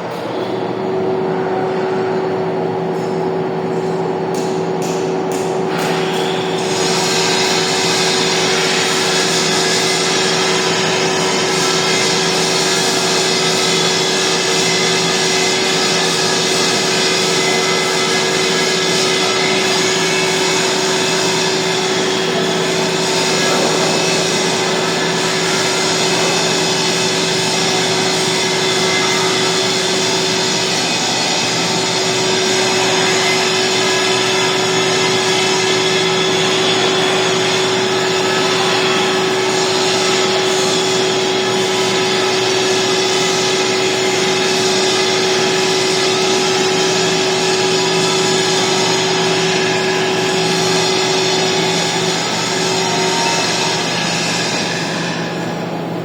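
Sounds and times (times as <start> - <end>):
lathe running: 0.0 - 56.0.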